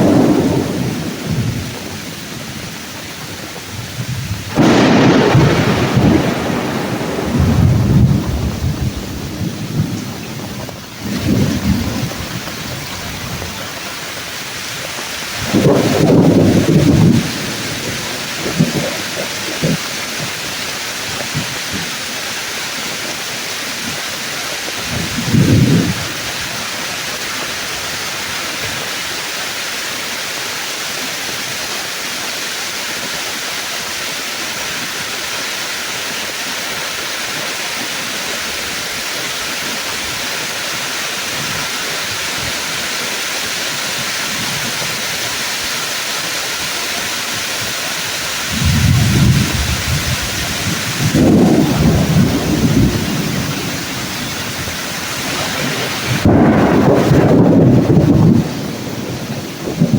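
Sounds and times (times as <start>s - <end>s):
thunder rumbling: 0.0s - 22.0s, 24.7s - 26.8s, 48.1s - 59.9s
heavy rain on leaves: 0.0s - 59.9s.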